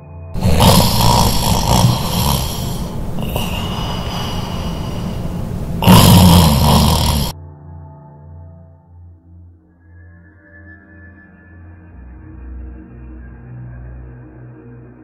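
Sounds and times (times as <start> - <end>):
loud snoring: 0.4 - 7.3.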